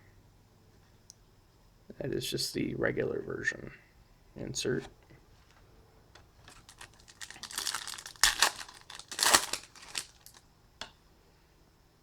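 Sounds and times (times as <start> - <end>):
wrapper crackling: 6.4 - 10.4
wrapper ripping: 6.4 - 10.4.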